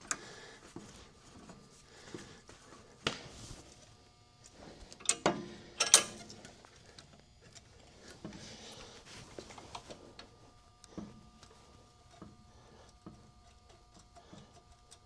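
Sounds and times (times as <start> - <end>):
metal clamp clanking: 5.0 - 6.5.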